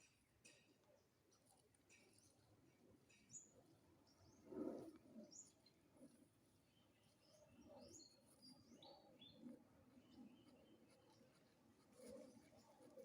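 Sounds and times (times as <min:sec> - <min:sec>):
small birds chirping: 0:03.1 - 0:13.0.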